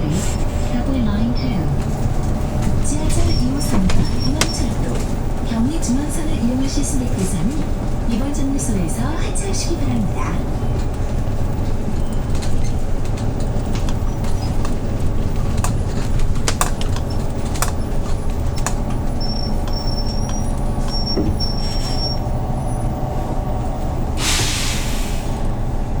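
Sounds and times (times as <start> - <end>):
bus engine rumbling: 0.0 - 26.0
clicks and rattles: 10.6 - 21.1
compressed air hiss: 24.2 - 25.4.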